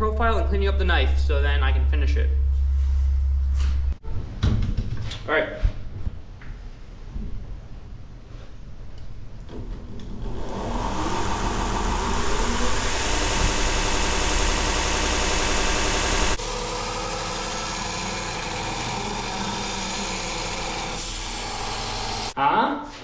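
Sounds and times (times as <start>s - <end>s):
belt sander motor running: 10.1s - 22.4s
metal grinding on sanding belt: 10.5s - 22.4s.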